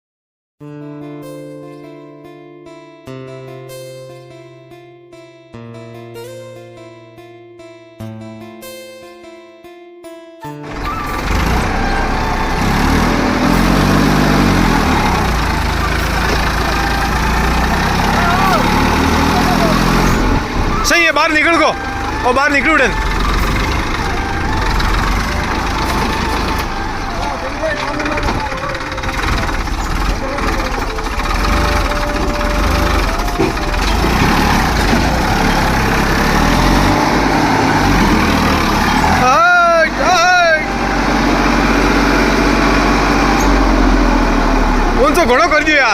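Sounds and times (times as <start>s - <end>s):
tractor diesel engine running: 10.6s - 45.9s.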